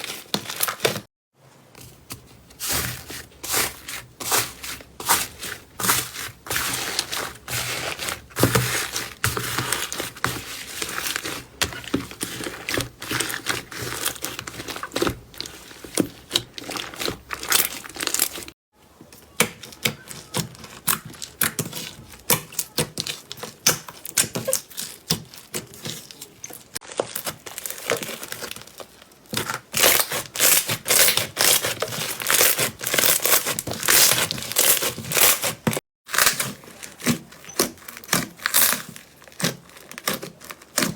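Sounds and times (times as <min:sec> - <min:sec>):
slime crackling and popping: 0:05.1 - 0:18.5, 0:26.8 - 0:35.5, 0:36.1 - 0:40.9.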